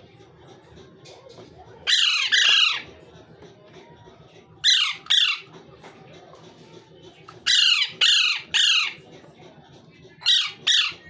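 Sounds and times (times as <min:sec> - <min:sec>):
parrot squawking: 0:01.9 - 0:02.9, 0:04.6 - 0:05.5, 0:07.4 - 0:09.0, 0:10.2 - 0:11.0.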